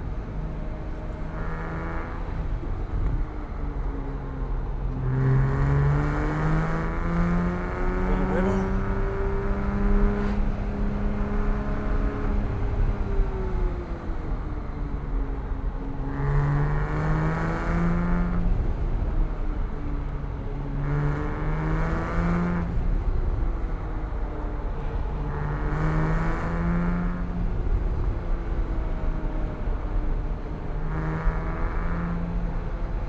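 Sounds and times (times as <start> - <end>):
car engine accelerating: 0.0 - 33.0
tyres rumbling on road: 0.0 - 33.0.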